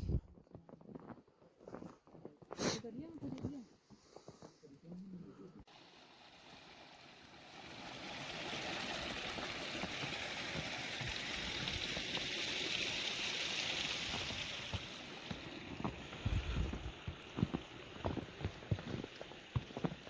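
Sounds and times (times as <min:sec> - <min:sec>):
running water rushing: 0:05.7 - 0:20.0.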